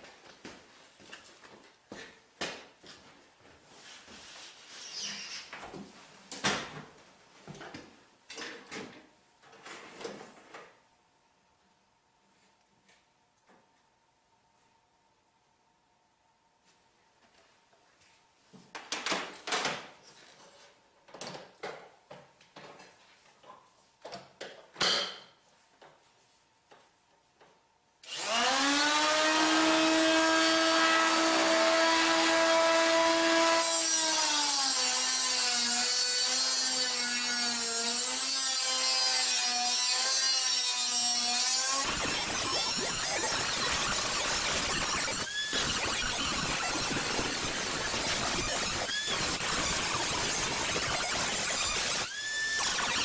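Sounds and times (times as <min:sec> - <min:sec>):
power tool cutting steel: 0:28.1 - 0:53.0.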